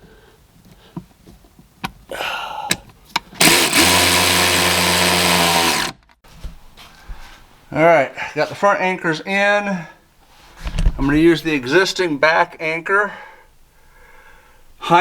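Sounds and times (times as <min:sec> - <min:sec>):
power drill running: 0:03.4 - 0:06.0.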